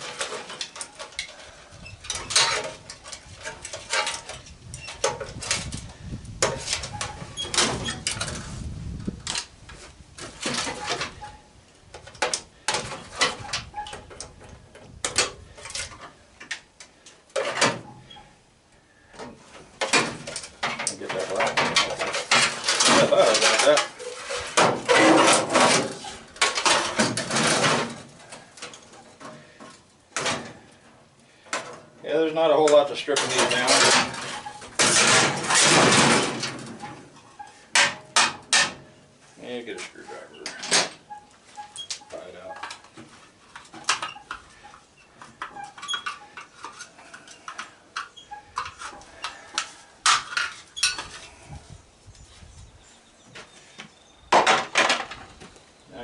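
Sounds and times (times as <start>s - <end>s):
metal clattering and scraping: 0.0s - 16.2s, 17.3s - 18.3s, 18.9s - 51.6s
screwdriver clanking on metal: 45.4s - 51.2s.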